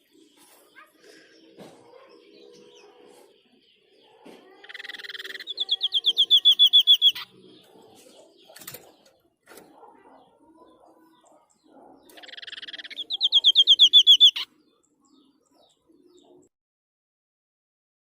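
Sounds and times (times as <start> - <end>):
bird call of rapid whistles: 12.2 - 14.4.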